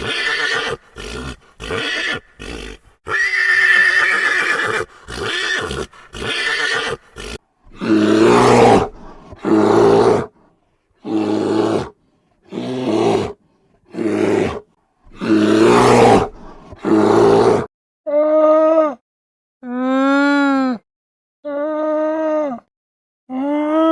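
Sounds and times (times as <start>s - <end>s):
animal pitched call: 0.0s - 8.9s
large animal harsh calls: 0.0s - 10.3s.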